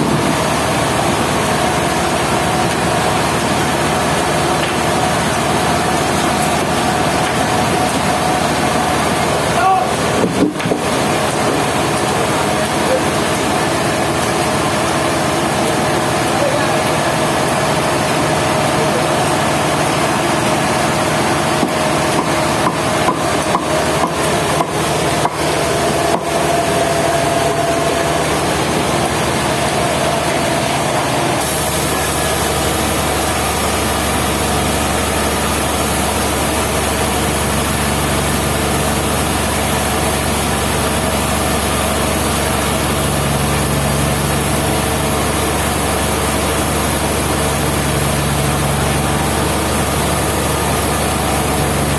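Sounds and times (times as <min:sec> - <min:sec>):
sawmill sawing through wood: 0:00.0 - 0:51.9
sharp knocks and clicks: 0:21.6 - 0:25.4.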